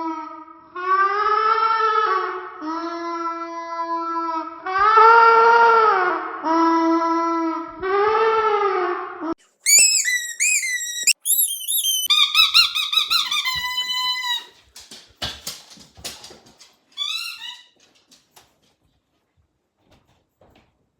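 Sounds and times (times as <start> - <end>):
squeaky dog toy squeaking: 9.6 - 14.6, 17.0 - 17.7.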